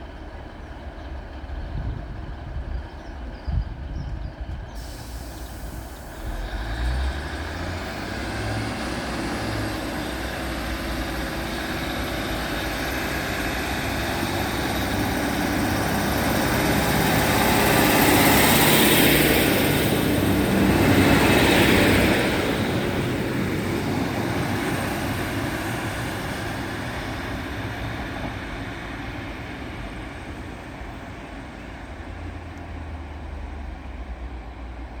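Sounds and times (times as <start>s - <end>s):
train diesel engines passing: 0.0s - 35.0s.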